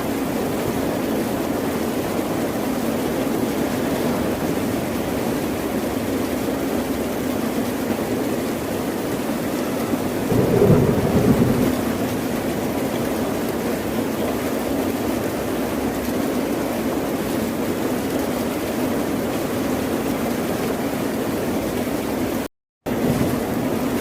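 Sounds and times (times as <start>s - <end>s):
ocean waves washing: 9.6s - 13.6s.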